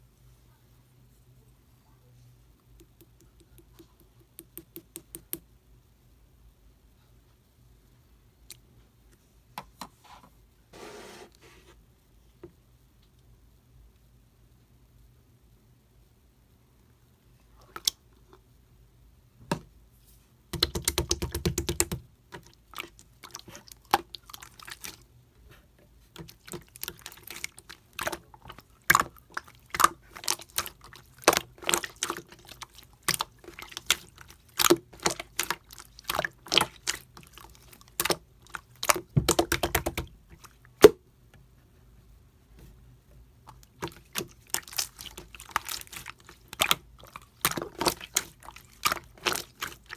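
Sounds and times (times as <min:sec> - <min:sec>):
slime squishing with wet clicks: 0:17.6 - 0:18.3, 0:20.6 - 0:25.1, 0:26.1 - 0:41.0, 0:43.4 - 0:49.9.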